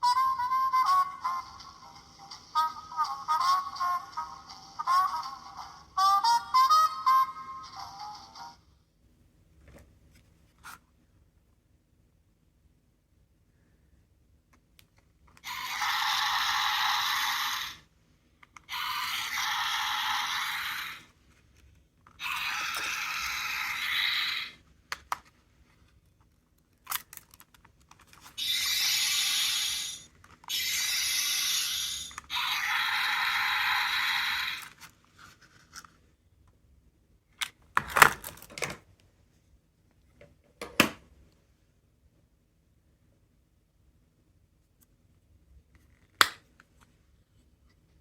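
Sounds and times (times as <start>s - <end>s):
toy speaker hissing effects: 15.4s - 17.9s, 18.7s - 21.1s, 22.2s - 24.6s, 28.4s - 34.7s.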